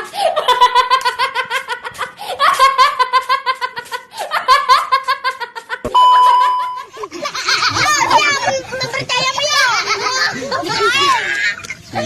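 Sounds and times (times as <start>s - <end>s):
person laughing in bursts: 0.0s - 10.7s
steady beep: 5.9s - 6.9s.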